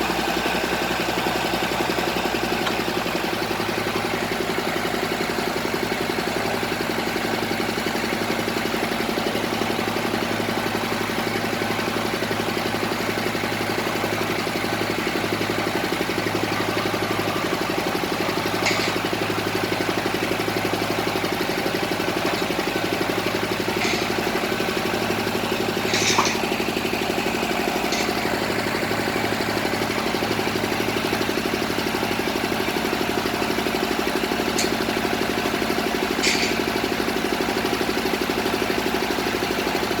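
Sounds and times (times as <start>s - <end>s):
drilling rig engine idling: 0.0s - 40.0s.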